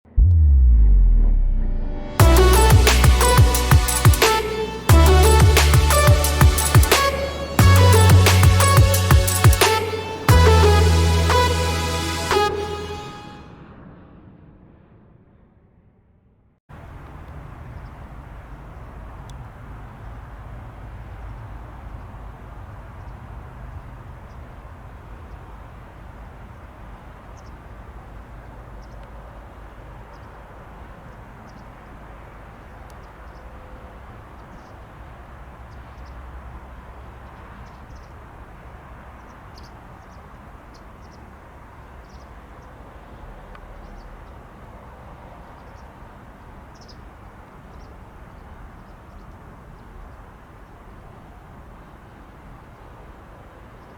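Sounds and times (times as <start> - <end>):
low rumble: 0.0 - 9.3
bird chirps: 32.6 - 34.8, 37.1 - 38.2, 39.1 - 42.7, 46.8 - 47.1.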